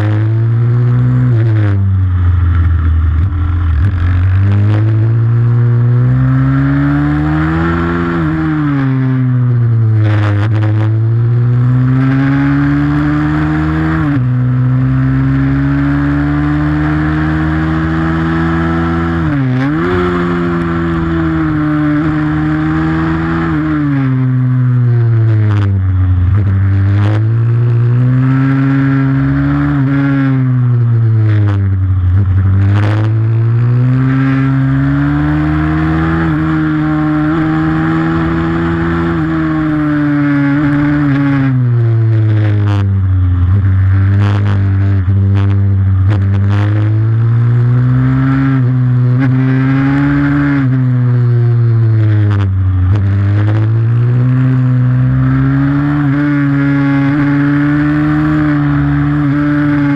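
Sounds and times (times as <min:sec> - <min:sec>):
small motorcycle engine revving: 0:00.0 - 0:59.9.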